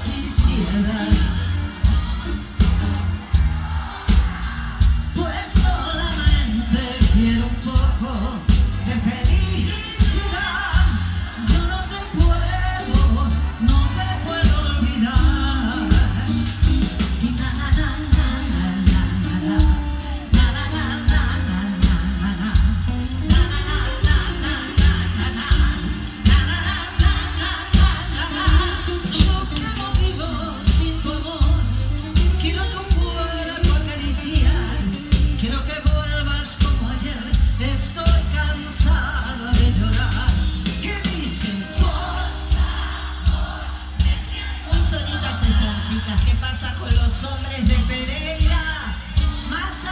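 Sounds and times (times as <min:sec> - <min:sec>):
heavy bass beat: 0:00.0 - 0:33.0
live pop band music: 0:00.0 - 0:49.9
wavering melodic lead line: 0:00.0 - 0:49.9.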